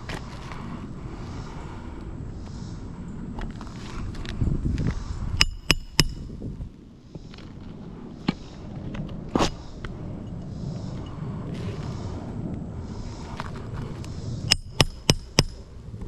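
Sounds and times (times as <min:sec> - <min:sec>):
low rumble: 0:00.0 - 0:16.0
sharp metallic taps: 0:05.4 - 0:06.2, 0:14.5 - 0:15.6.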